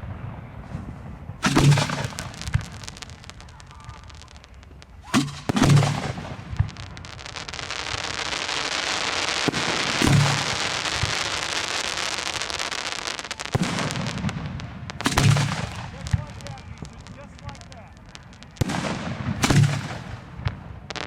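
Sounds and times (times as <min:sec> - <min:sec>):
dense crackling hiss: 0:00.0 - 0:21.0
firework shell bursts booming: 0:01.4 - 0:04.2, 0:05.0 - 0:07.0, 0:08.9 - 0:11.4, 0:13.5 - 0:17.0, 0:18.6 - 0:20.6.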